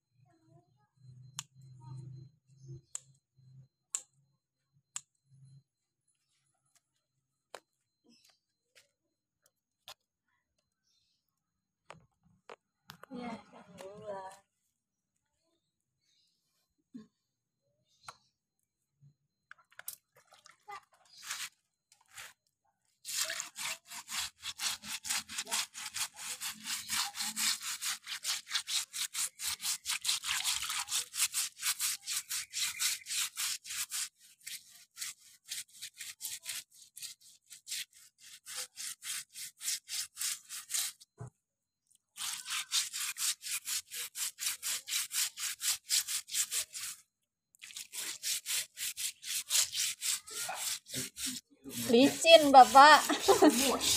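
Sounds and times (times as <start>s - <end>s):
stiff brush scrubbing: 21.0s - 22.4s, 23.0s - 41.3s, 41.9s - 53.9s.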